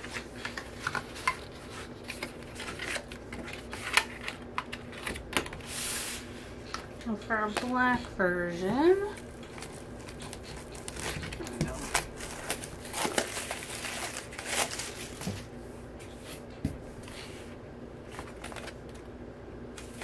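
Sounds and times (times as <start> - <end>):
packaging crinkling and rustling: 0.0 - 5.7, 8.8 - 15.5, 18.0 - 19.0.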